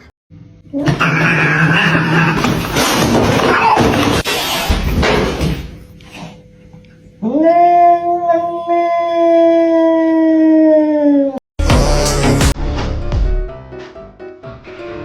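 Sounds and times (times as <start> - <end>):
animal howl: 0.8 - 2.8, 7.2 - 11.4.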